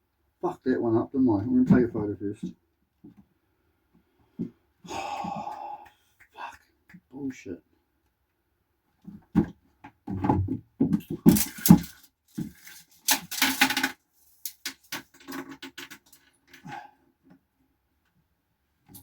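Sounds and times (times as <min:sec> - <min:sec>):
objects knocking on wooden floor: 0:09.1 - 0:12.6
scraping and rattling: 0:11.0 - 0:16.3.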